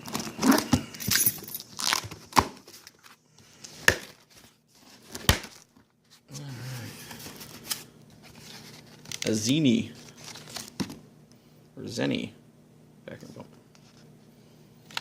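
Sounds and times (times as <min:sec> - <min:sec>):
cardboard tearing and crinkling: 0:01.7 - 0:03.1, 0:03.9 - 0:05.7.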